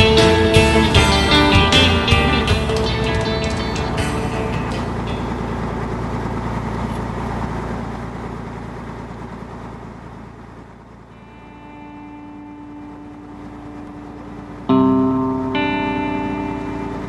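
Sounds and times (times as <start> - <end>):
engine rumbling: 0.0 - 17.0.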